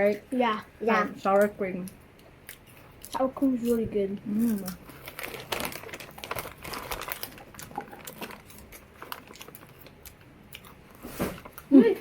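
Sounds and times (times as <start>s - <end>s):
snack packaging crinkling: 2.5s - 11.7s
crunchy snacks being eaten: 4.3s - 10.8s.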